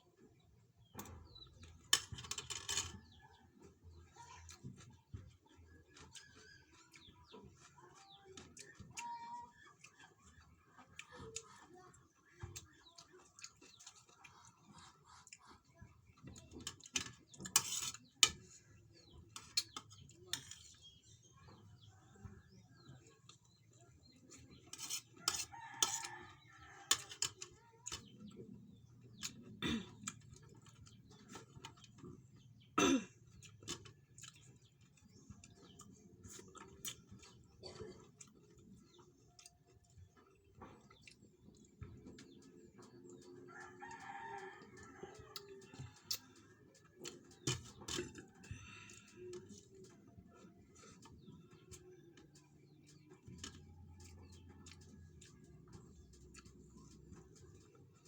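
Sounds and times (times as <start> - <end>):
clinks of eating from a plate: 0.9 - 3.4, 4.5 - 28.4, 32.8 - 52.3.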